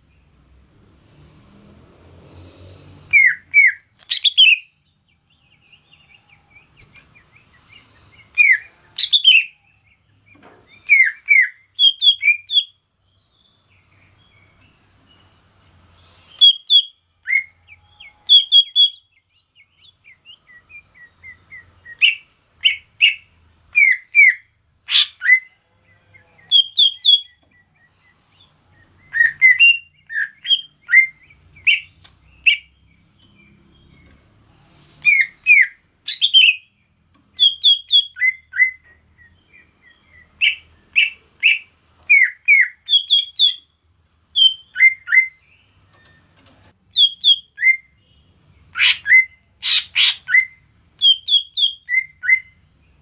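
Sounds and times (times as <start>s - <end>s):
bird chirping and whistling: 3.0s - 4.8s, 6.6s - 9.6s, 10.3s - 12.7s, 16.3s - 17.6s, 18.2s - 25.5s, 26.5s - 27.4s, 28.9s - 32.8s, 35.0s - 36.7s, 37.4s - 43.7s, 44.4s - 45.4s, 46.9s - 47.9s, 48.7s - 52.6s.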